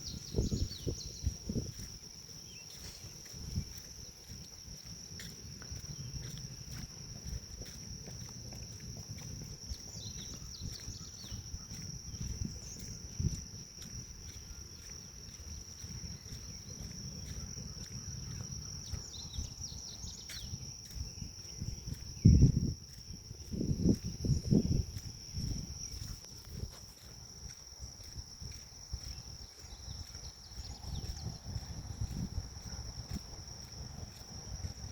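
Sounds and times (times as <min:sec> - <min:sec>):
insects droning: 0:00.0 - 0:34.9
bird chirps: 0:09.9 - 0:12.9.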